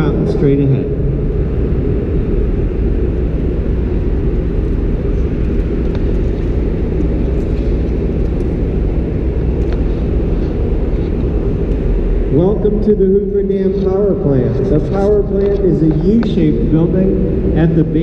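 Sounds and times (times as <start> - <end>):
generator hall rumble and hum: 0.0 - 18.0.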